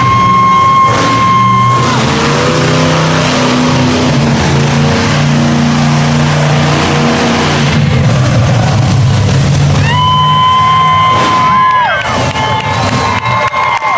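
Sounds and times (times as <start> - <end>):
steady high tone: 0.0 - 3.0
arena noise: 0.0 - 13.9
truck engine revving: 0.0 - 13.9.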